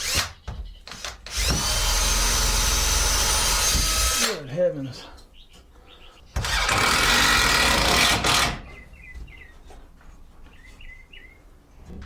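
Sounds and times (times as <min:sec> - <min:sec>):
bird chirps: 0:05.2 - 0:06.4, 0:08.6 - 0:09.8, 0:10.4 - 0:11.5.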